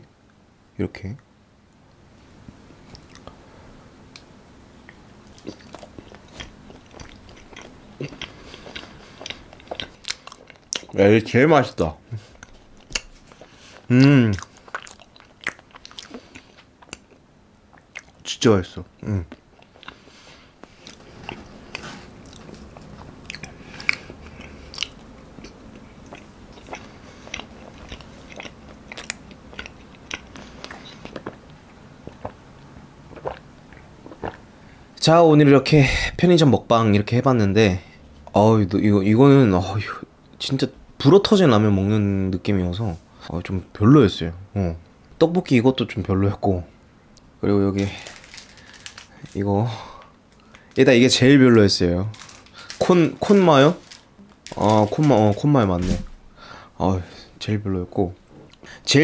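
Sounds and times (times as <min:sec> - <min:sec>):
person chewing: 0:02.8 - 0:03.4, 0:04.9 - 0:11.0, 0:12.2 - 0:18.2, 0:19.0 - 0:34.5, 0:47.2 - 0:50.8, 0:52.1 - 0:55.4.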